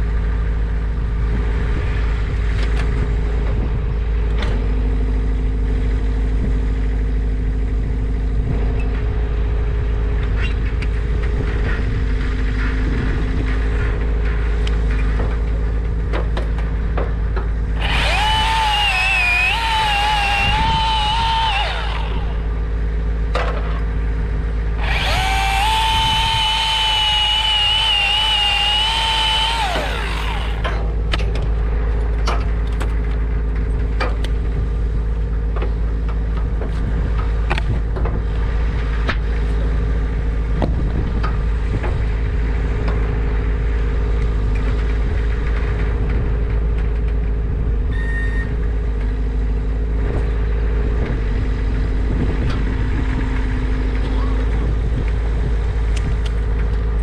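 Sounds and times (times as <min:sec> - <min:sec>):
engine idling: 0:12.0 - 0:34.4
chainsaw cutting wood: 0:17.8 - 0:22.7, 0:24.8 - 0:30.9.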